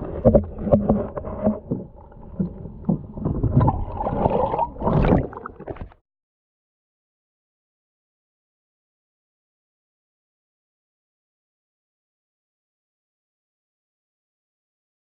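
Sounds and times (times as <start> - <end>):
boat rocking with rumbling knocks: 0.0 - 4.0.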